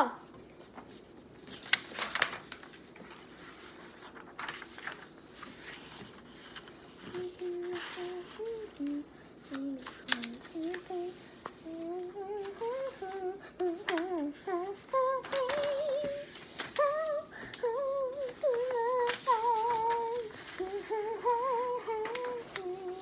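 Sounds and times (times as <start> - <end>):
paper crackling: 0.4 - 23.0
person humming: 7.1 - 23.0.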